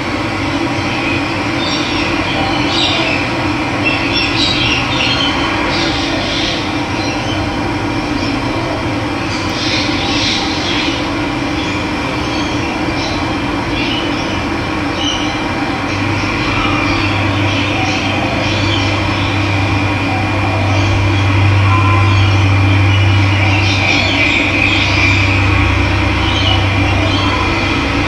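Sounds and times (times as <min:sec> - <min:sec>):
birds chirping: 0:09.2 - 0:28.0.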